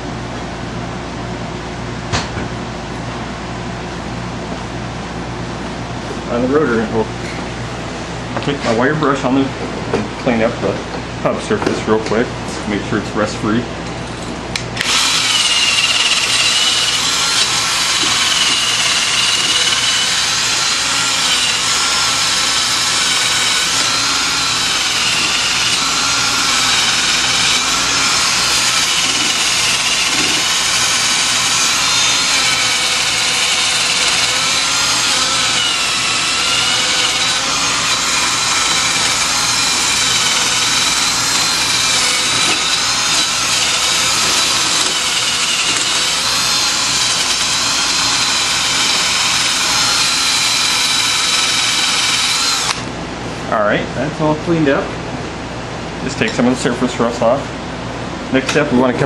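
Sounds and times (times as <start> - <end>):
wire brush power tool whining: 14.1 - 53.0.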